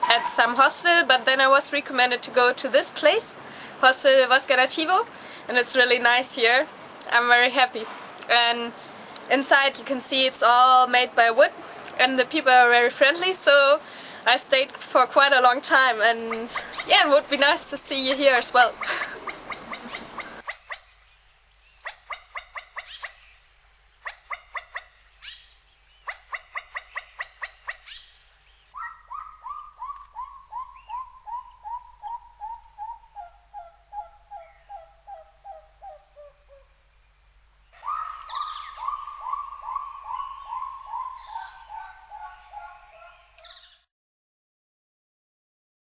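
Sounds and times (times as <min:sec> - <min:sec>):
animal rapid clicking: 0:18.1 - 0:20.8
animal calls falling in pitch: 0:37.8 - 0:43.5.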